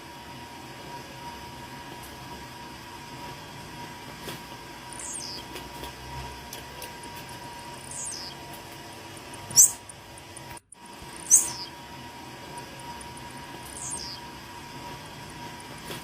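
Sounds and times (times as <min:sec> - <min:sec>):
bird singing high notes: 0:04.9 - 0:05.5, 0:07.8 - 0:08.4, 0:09.5 - 0:09.9, 0:11.2 - 0:11.8, 0:13.6 - 0:14.3.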